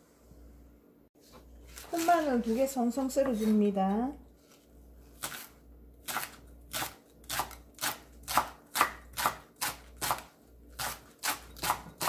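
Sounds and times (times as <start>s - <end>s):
knife chopping on cutting board: 5.2s - 12.0s.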